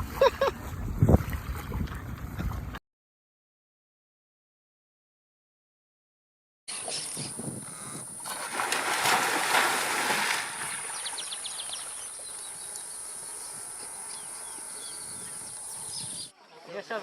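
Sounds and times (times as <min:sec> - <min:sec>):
water splashing: 0:08.2 - 0:14.0
bird chirps: 0:10.8 - 0:16.7.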